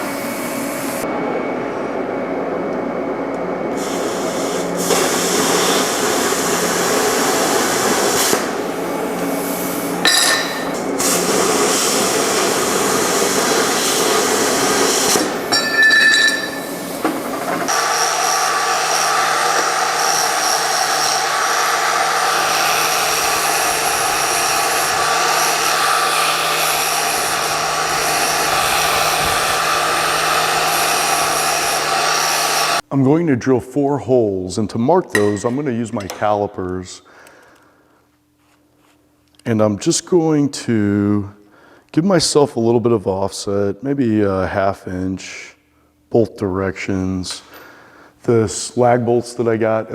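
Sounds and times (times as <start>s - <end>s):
thin high whine: 0.0s - 32.8s
plasma cutter hissing: 3.8s - 15.5s, 17.7s - 32.8s.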